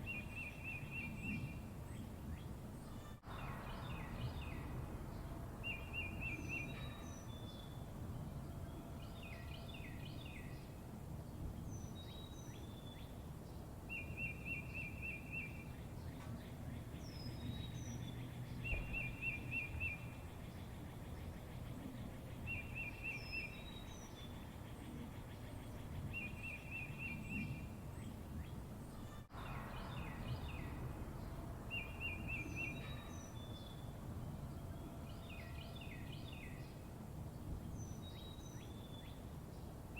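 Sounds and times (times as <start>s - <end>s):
small birds singing: 0.0s - 39.9s
low outdoor rumble: 1.1s - 13.9s, 27.2s - 39.9s.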